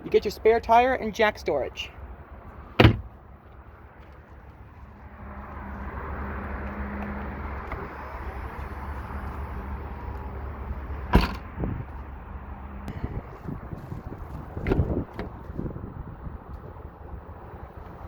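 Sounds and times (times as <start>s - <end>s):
steady low rumble: 0.0s - 18.0s
knocks in car cargo area: 2.8s - 3.1s, 11.1s - 11.7s.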